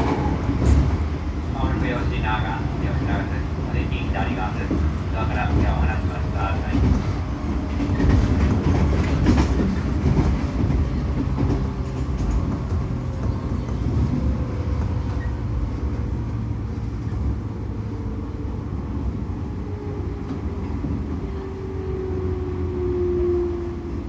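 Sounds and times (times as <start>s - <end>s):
rail joint clicks: 0.0s - 16.2s, 18.8s - 21.5s
train wheels rumbling on rails: 0.0s - 24.0s.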